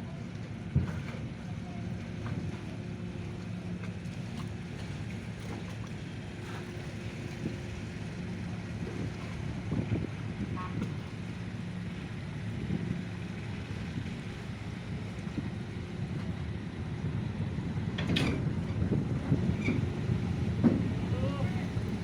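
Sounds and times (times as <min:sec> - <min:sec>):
wind buffeting microphone: 0:08.8 - 0:11.1, 0:13.8 - 0:22.0
diesel engines droning: 0:11.2 - 0:22.0.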